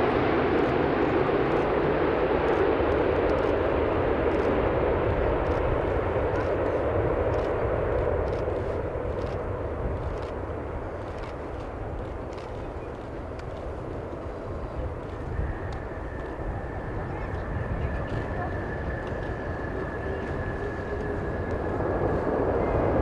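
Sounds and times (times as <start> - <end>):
jet engine rumble: 0.0 - 23.0
faint clicks: 11.0 - 16.4.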